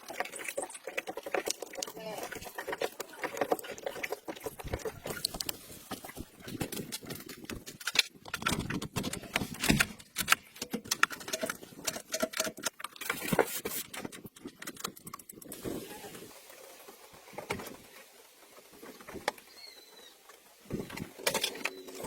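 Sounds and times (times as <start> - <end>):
sharp clicks and knocks: 0.0 - 15.5.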